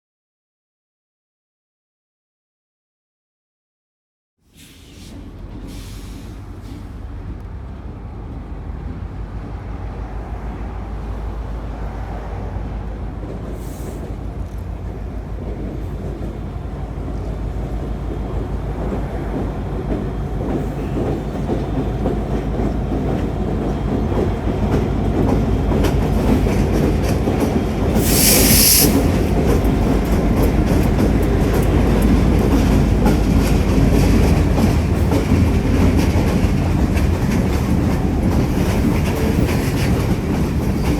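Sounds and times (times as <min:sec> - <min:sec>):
freight train rumble: 0:04.4 - 0:40.9
short hiss: 0:04.6 - 0:06.8, 0:28.0 - 0:29.2
wheels clicking over rail joints: 0:12.3 - 0:40.9.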